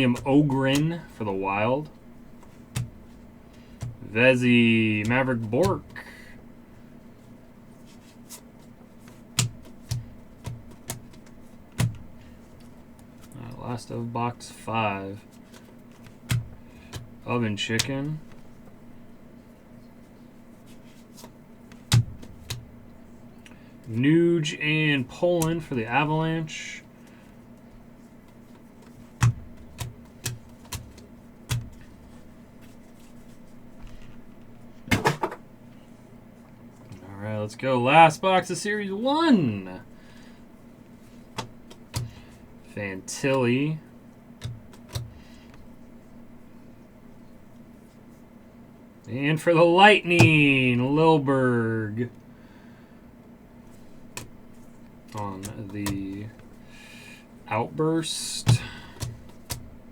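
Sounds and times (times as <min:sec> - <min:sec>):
trading card boxes tapping and knocking: 0:00.0 - 0:01.1, 0:02.4 - 0:04.1, 0:04.9 - 0:06.1, 0:09.1 - 0:13.1, 0:15.5 - 0:18.4, 0:21.7 - 0:22.8, 0:28.3 - 0:32.2, 0:34.9 - 0:35.5, 0:41.4 - 0:42.3, 0:44.4 - 0:45.6, 0:50.1 - 0:50.6, 0:54.1 - 0:56.4, 0:58.4 - 0:59.9
low steady hum: 0:00.0 - 0:59.9.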